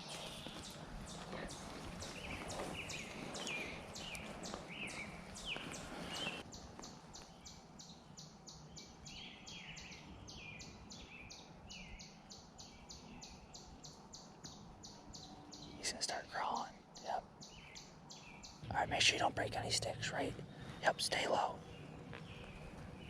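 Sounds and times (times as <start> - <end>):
faint rustling: 0.0 - 7.4, 18.7 - 23.0
songbirds chirping: 0.0 - 23.0.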